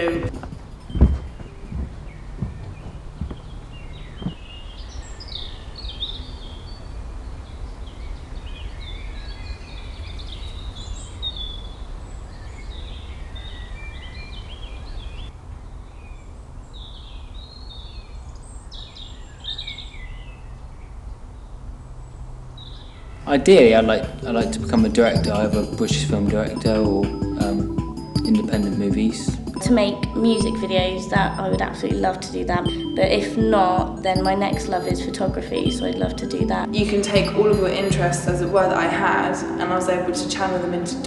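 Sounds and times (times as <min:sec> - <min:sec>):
low outdoor rumble: 0:00.0 - 0:04.8
birds chirping and singing: 0:00.0 - 0:15.3, 0:22.6 - 0:41.0.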